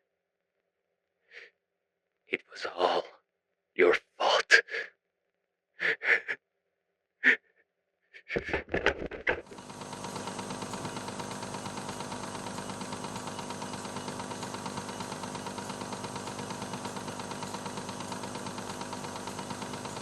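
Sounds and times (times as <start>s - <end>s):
cassette motor whirring: 9.3s - 20.0s.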